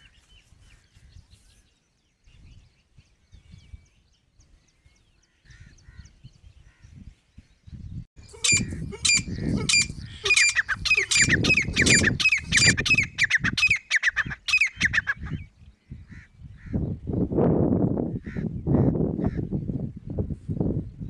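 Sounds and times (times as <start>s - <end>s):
partridge shrill call notes: 8.2s - 15.4s.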